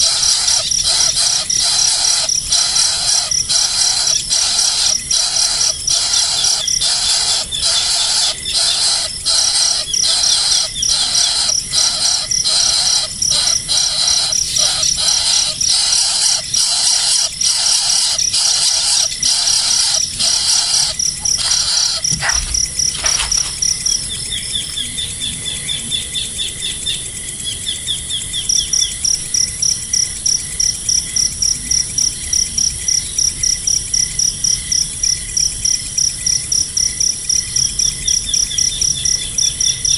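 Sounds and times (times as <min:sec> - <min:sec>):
fast high-pitched chirping: 0:00.0 - 0:25.0
bird calls: 0:00.0 - 0:27.0.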